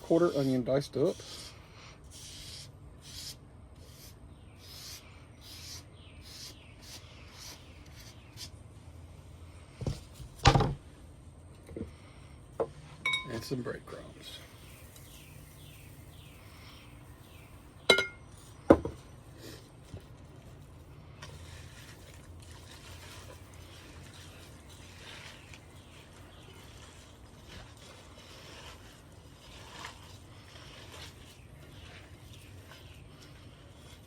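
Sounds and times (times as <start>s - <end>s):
kitchenware clinking: 13.0s - 13.4s, 17.9s - 18.2s.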